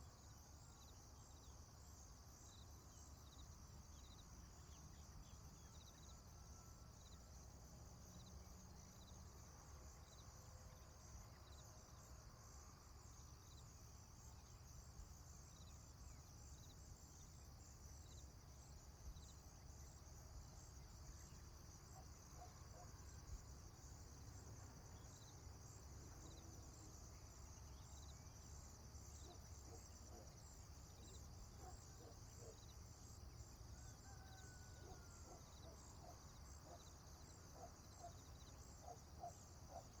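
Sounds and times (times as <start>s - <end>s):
crickets chirping: 0.0s - 40.0s.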